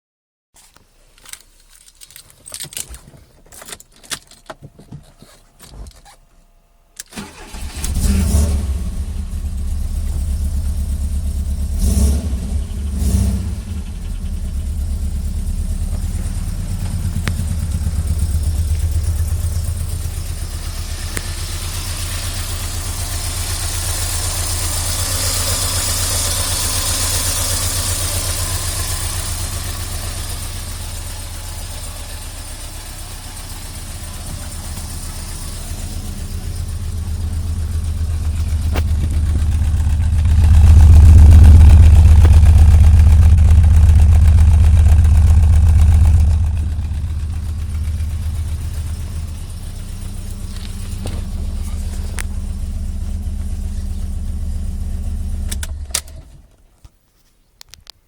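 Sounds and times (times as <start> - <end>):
car engine starting and idling: 0.7 - 56.7.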